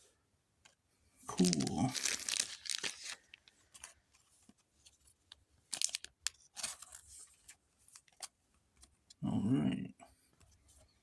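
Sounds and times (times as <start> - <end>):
foil wrapper crinkling and tearing: 1.3 - 3.5, 5.7 - 7.0.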